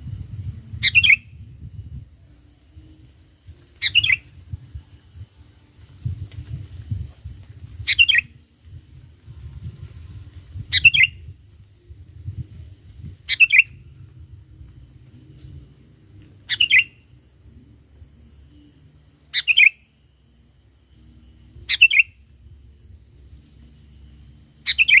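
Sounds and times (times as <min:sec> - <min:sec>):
low rumble: 0:00.0 - 0:19.2
bulbul calling: 0:00.8 - 0:01.3, 0:03.8 - 0:04.3, 0:07.8 - 0:08.4, 0:10.7 - 0:11.3, 0:13.3 - 0:13.8, 0:16.4 - 0:17.1, 0:19.3 - 0:19.8, 0:21.7 - 0:22.2, 0:24.6 - 0:25.0.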